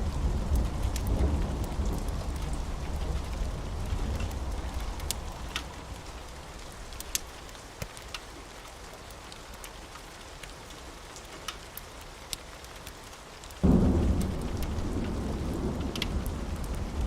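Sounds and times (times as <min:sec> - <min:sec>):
low thunder rumble: 0:00.0 - 0:06.3, 0:13.6 - 0:17.0
rain hiss: 0:00.0 - 0:17.0
wood fire crackling: 0:00.0 - 0:17.0.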